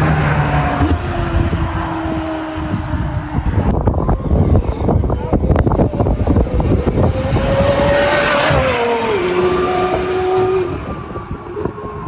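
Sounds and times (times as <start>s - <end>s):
car engine passing at speed: 0.0s - 3.8s, 6.2s - 11.7s.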